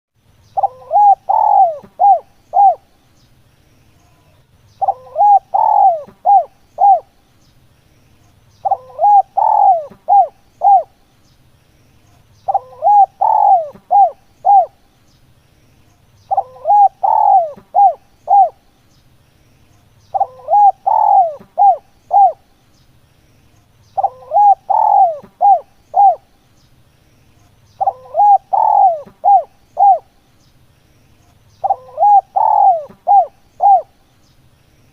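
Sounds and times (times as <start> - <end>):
dove cooing: 0.6 - 2.9, 4.8 - 7.2, 8.6 - 11.0, 12.5 - 14.8, 16.3 - 18.6, 20.1 - 22.4, 24.0 - 26.3, 27.8 - 30.1, 31.6 - 34.0.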